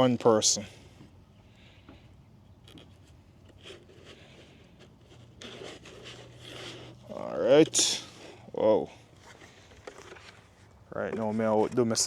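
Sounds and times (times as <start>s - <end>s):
plastic rubbing and scraping: 2.6s - 8.4s, 9.1s - 12.0s.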